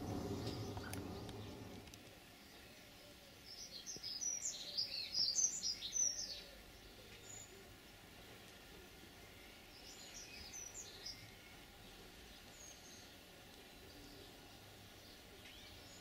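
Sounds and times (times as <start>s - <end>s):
faint outdoor background noise: 0.0s - 16.0s
songbird chirping and whistling: 2.5s - 7.6s, 9.3s - 11.7s.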